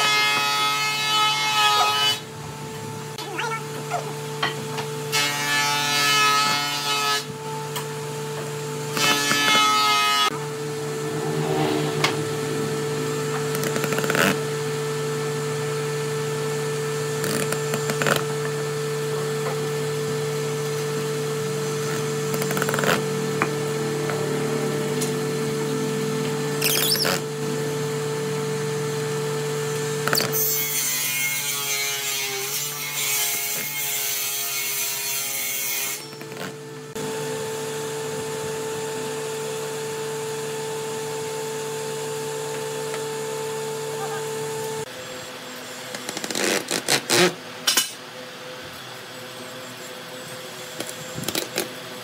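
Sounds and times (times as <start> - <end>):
steady low hum: 7.2 - 29.1.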